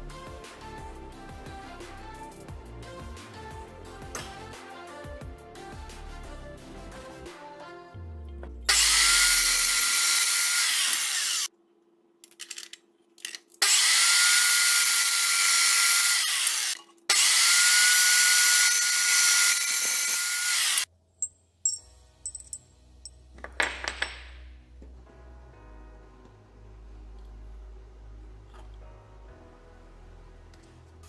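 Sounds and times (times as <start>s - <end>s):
electric motor whining: 8.7s - 11.5s.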